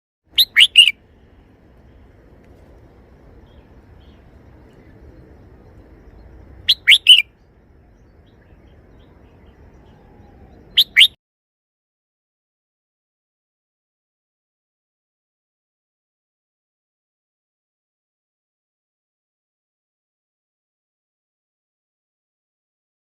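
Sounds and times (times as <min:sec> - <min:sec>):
bird singing whistled notes: 0:00.3 - 0:01.0, 0:02.8 - 0:11.2
faint low hum: 0:00.4 - 0:11.0.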